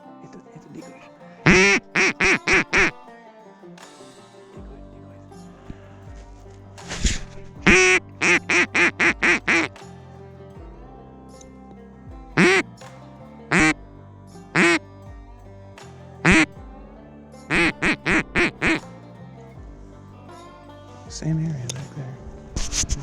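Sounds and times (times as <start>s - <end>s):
background music: 0.0s - 23.0s
duck quacking: 1.4s - 3.0s, 7.0s - 9.8s, 12.4s - 12.6s, 13.5s - 13.8s, 14.6s - 14.8s, 16.2s - 16.5s, 17.5s - 18.8s.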